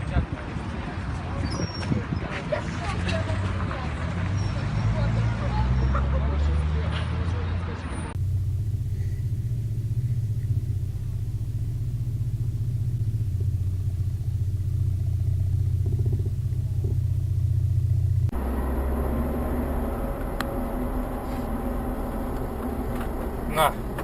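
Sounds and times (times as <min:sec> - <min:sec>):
vehicle engine and road rumble: 0:00.0 - 0:24.0
hissy road noise: 0:07.8 - 0:24.0.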